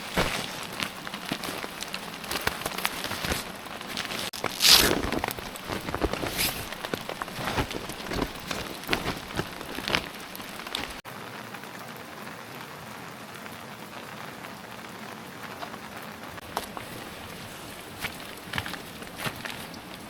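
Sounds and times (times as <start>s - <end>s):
knocks and crunches: 0.0s - 11.0s, 16.4s - 20.0s
steady rain: 0.0s - 20.0s.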